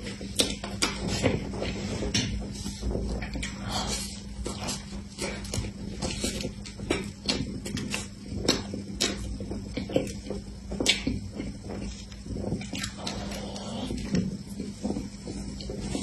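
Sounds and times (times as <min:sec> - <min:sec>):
wet chewing mouth sounds: 0:03.2 - 0:16.0.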